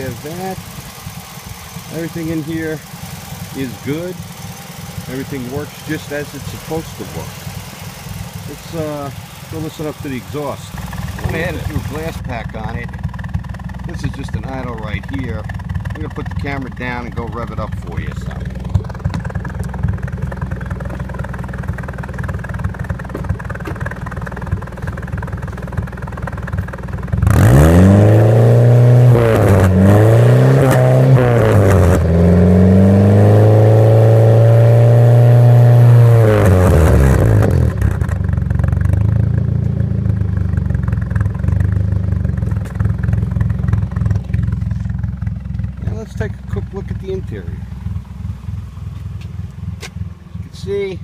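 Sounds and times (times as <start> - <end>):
car exhaust idling and revving: 0.0 - 51.0.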